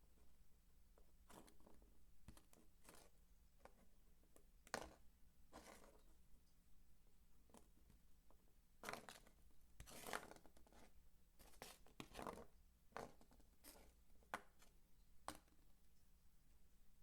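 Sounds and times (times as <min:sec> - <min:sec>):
soap crunching and scraping: 0:08.8 - 0:13.9.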